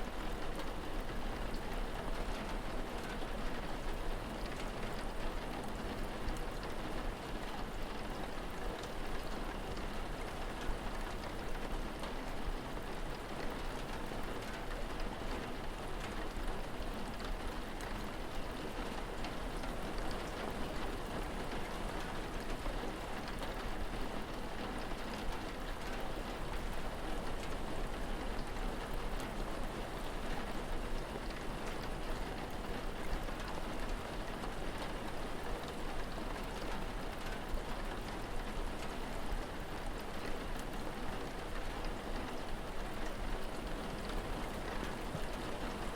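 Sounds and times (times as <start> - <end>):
rain falling: 0.0 - 45.9.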